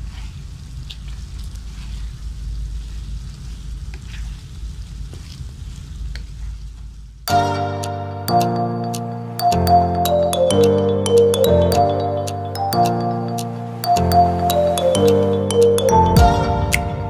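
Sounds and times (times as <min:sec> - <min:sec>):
chicken sizzling in glaze: 0:00.0 - 0:06.8
sharp ticks: 0:10.4 - 0:14.1.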